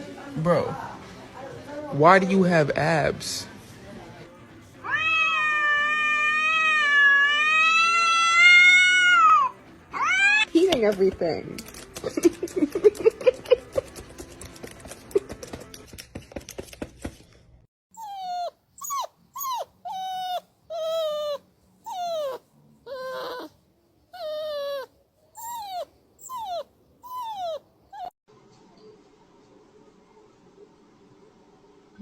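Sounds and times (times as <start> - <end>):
dog whining: 17.9 - 28.2.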